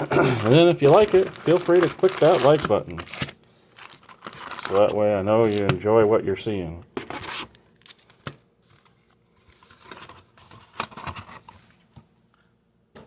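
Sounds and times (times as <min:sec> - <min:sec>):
packaging rustling and crinkling: 0:00.4 - 0:06.2, 0:06.9 - 0:11.8
packaging clicks: 0:00.5 - 0:05.8.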